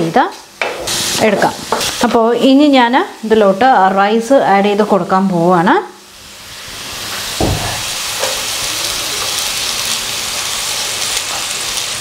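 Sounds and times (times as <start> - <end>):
vegetables sizzling in oil: 0.0 - 12.0
dull knock: 7.4 - 7.9.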